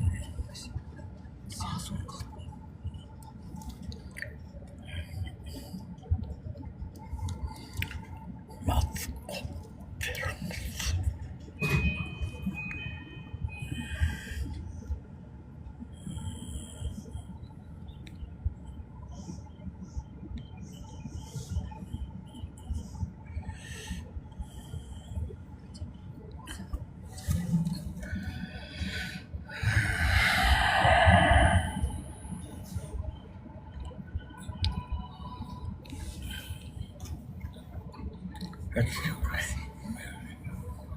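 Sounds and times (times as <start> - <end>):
thin high whine: 27.2 - 33.1.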